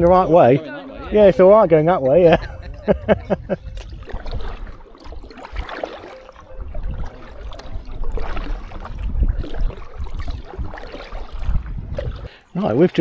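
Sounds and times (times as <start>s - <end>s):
wind rumbling on microphone: 0.0s - 12.4s
paddle blades splashing: 0.0s - 13.0s
water trickling off paddle: 3.0s - 13.0s.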